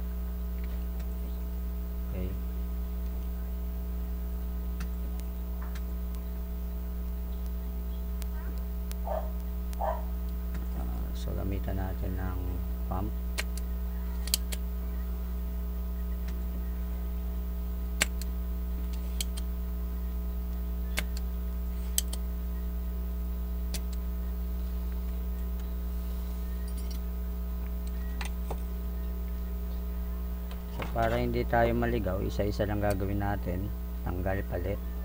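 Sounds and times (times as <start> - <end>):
low electrical hum: 0.0 - 35.0
desoldering pump clicks: 13.4 - 14.6, 18.0 - 19.5, 21.9 - 22.2, 23.7 - 24.0, 32.8 - 33.1.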